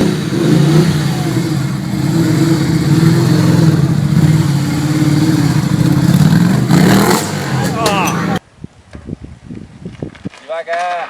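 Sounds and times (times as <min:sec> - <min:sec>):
vehicle engine running: 0:00.0 - 0:08.4.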